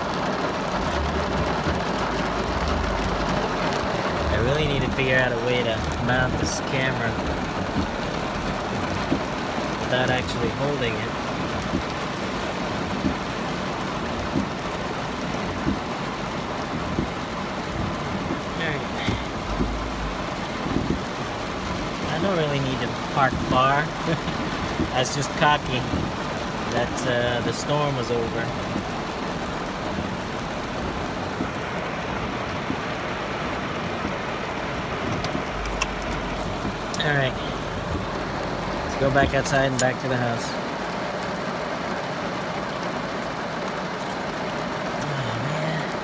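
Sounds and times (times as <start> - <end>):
heavy rain on car roof: 0.0 - 46.0
soft low thump: 19.0 - 19.9, 20.6 - 21.1.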